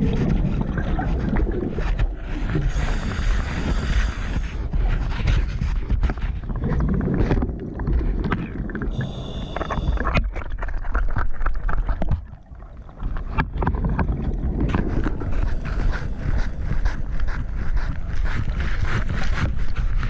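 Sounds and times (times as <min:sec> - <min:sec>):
bubbles rushing and crackling: 0:00.0 - 0:20.0
diver breathing through regulator: 0:02.3 - 0:06.3, 0:08.9 - 0:10.2, 0:12.4 - 0:19.4.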